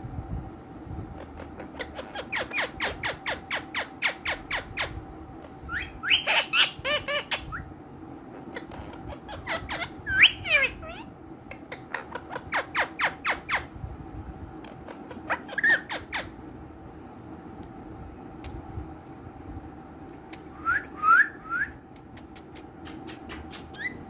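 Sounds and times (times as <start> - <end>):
parakeets squawking: 1.3 - 5.0, 5.7 - 7.6, 8.4 - 13.7, 14.9 - 16.4.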